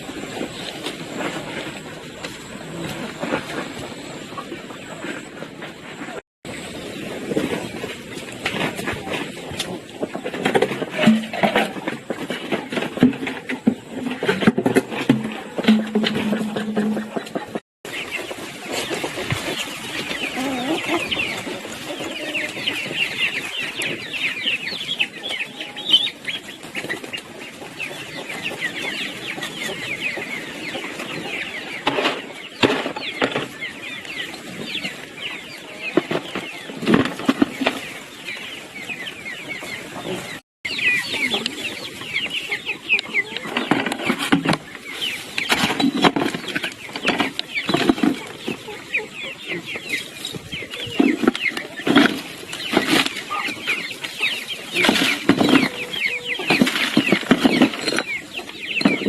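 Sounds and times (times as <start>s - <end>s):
chickens clucking and peeping: 0.0s - 59.0s
knocks: 14.3s - 17.5s.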